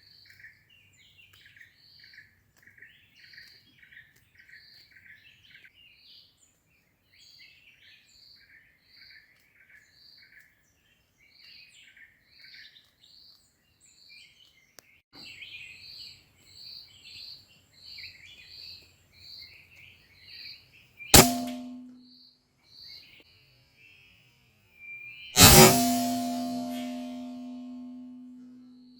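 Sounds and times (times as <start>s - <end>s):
air rifle shot: 21.2s - 21.9s, 25.4s - 28.2s.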